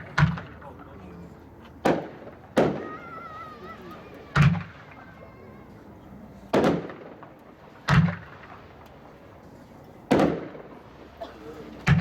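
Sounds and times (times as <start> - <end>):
fireworks bangs: 0.0 - 0.9, 1.8 - 5.4, 6.4 - 9.3, 10.0 - 12.0.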